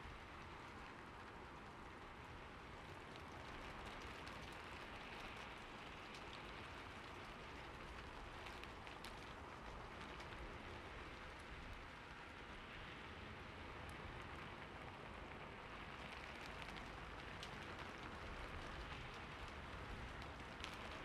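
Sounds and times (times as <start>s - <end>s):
faint rain-like hiss: 0.0s - 21.0s
light ticks: 3.1s - 11.7s, 15.9s - 21.0s.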